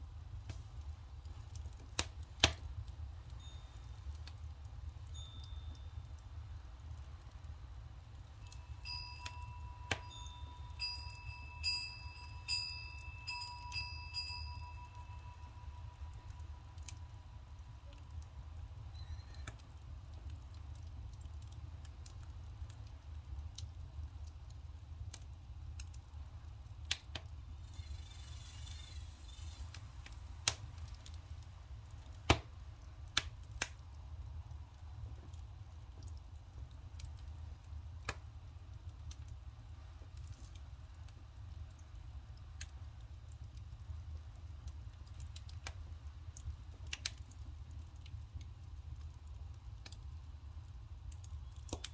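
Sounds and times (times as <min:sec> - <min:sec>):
firewood crackling and popping: 0:00.0 - 0:51.9
water boiling in cauldron: 0:00.0 - 0:51.9
wind chime ringing: 0:05.1 - 0:05.9, 0:08.4 - 0:16.7, 0:27.6 - 0:29.9.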